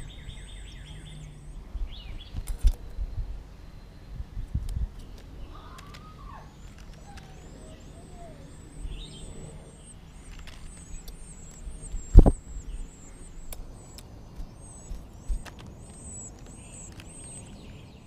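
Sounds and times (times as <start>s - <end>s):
small birds chirping: 0.0s - 18.0s
low thumps: 11.8s - 12.6s.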